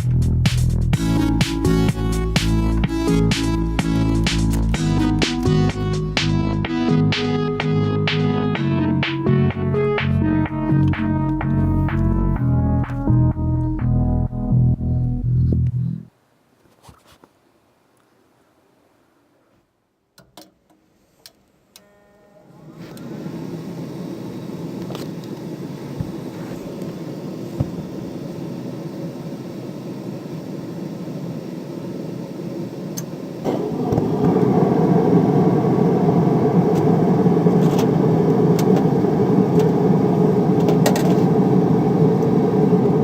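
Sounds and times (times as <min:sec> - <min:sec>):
furnace inducer motor whining: 0:22.6 - 0:43.0.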